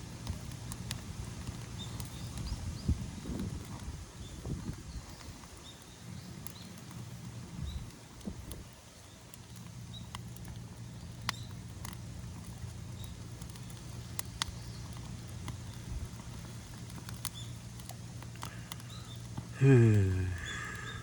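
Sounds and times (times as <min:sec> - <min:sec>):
bonfire crackling and popping: 0:00.0 - 0:21.0
steady low hum: 0:18.1 - 0:21.0.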